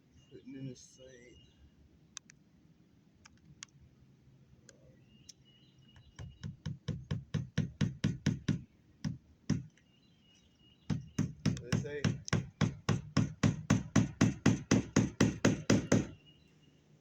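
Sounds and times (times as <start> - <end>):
hammer hitting nail: 6.2 - 9.7, 10.9 - 16.2.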